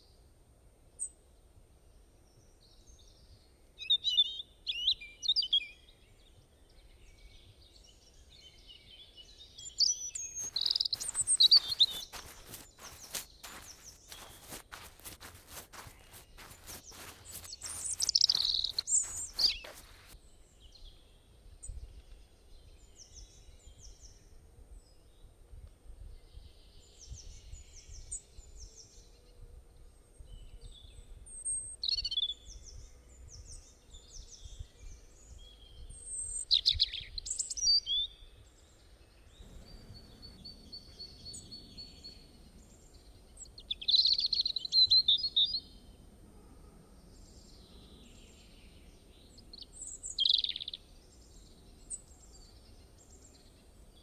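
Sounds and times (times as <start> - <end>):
songbirds chirping: 9.7 - 20.2
footsteps: 10.2 - 20.2.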